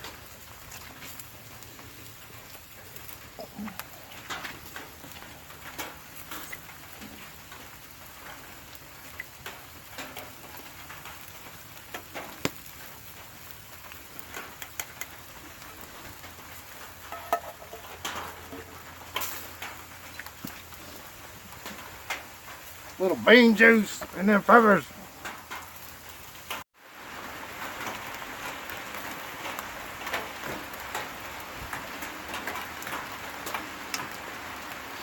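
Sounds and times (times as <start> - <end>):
steady rain falling: 0.0 - 35.0
food sizzling: 11.3 - 29.2
sharp pops and clicks: 14.2 - 15.6.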